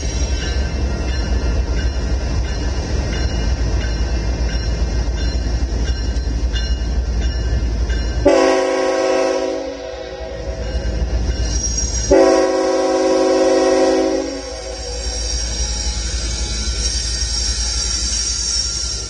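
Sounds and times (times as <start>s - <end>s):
freight train rumbling: 0.0s - 19.0s
locomotive air horn chord: 8.2s - 10.6s, 12.1s - 15.0s.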